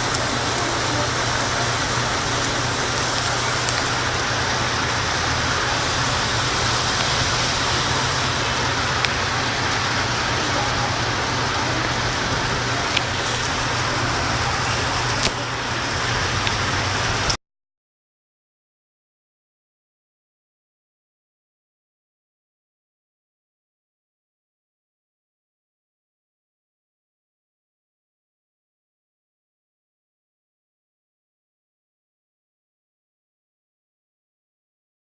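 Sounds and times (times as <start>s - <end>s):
heavy rain hiss: 0.0s - 17.4s
sharp drip ticks: 0.0s - 17.4s.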